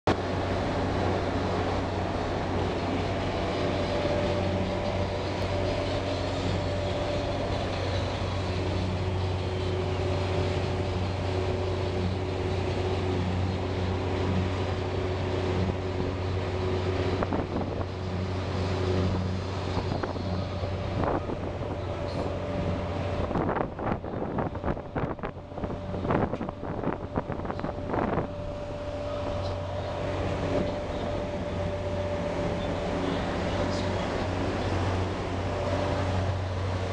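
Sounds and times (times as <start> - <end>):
boat engine droning: 0.0 - 36.9.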